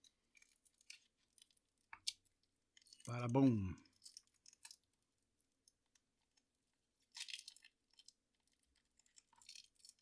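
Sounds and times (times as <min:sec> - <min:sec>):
packaging crinkling rustle: 0:05.8 - 0:10.0.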